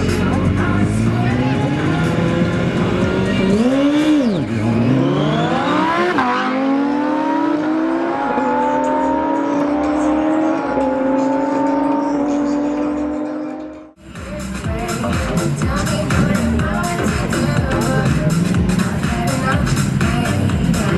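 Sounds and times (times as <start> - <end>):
engine accelerating through gears: 0.0 - 14.0.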